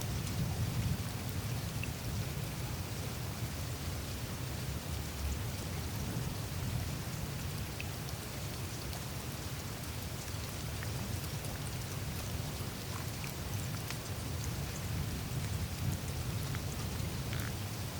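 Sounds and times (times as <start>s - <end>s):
meltwater trickling and dripping: 0.0s - 17.9s.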